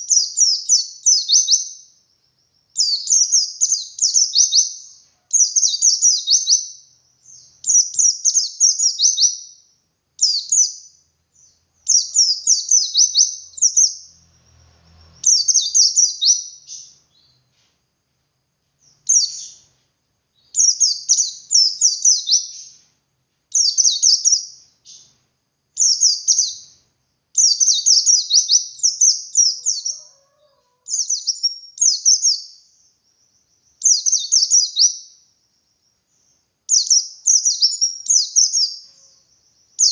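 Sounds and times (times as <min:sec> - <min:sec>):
bird twittering song: 0:00.0 - 0:17.7, 0:18.8 - 0:39.9.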